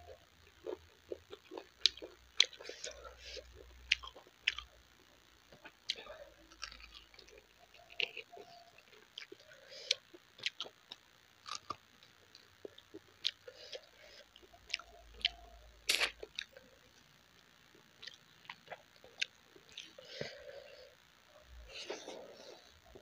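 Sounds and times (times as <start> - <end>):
chewing with mouth clicks: 0.4 - 4.8, 5.5 - 16.6, 17.7 - 20.0.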